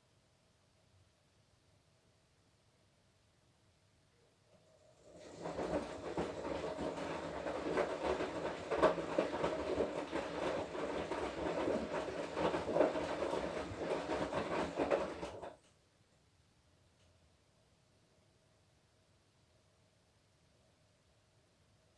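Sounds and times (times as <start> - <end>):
laundry and water sloshing: 5.0 - 15.5
washing machine drum turning: 5.1 - 15.6.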